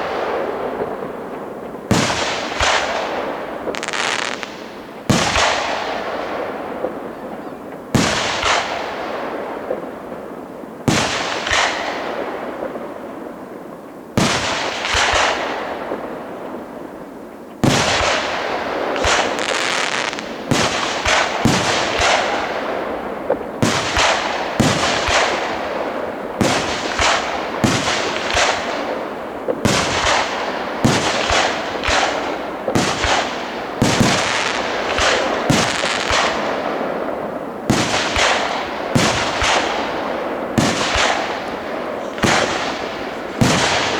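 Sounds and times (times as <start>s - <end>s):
firework shells bursting with bangs: 1.9s - 7.0s, 17.6s - 43.9s.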